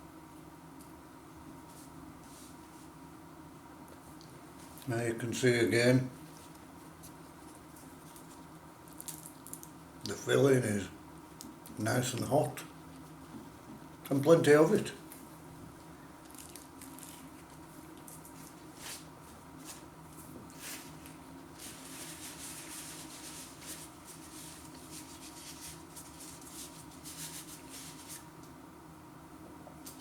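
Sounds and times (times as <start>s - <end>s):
faint steady hum: 0.0s - 30.0s
pastry crackling while eaten: 6.3s - 10.2s, 16.2s - 19.2s.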